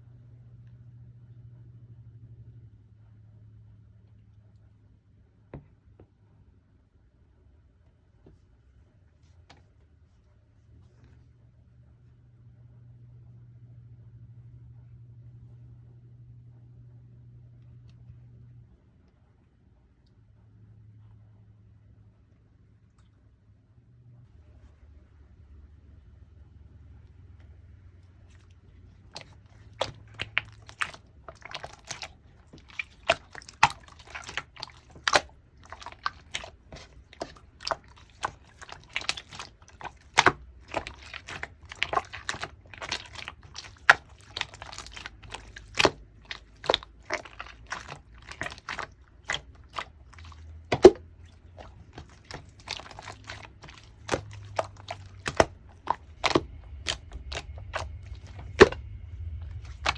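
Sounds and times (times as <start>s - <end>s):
slime clicking and popping: 29.2s - 51.0s, 51.6s - 58.8s.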